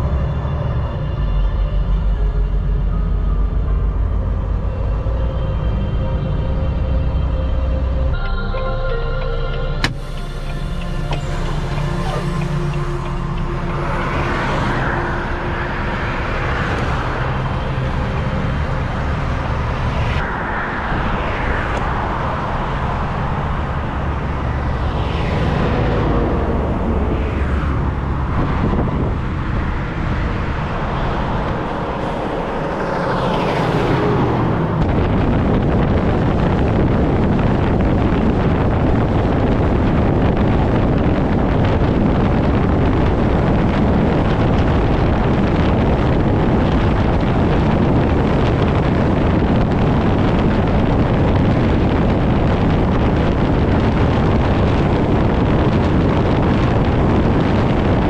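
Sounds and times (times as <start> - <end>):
road and wind noise: 0.0 - 58.0
vehicle engine pitch sliding: 9.8 - 36.8.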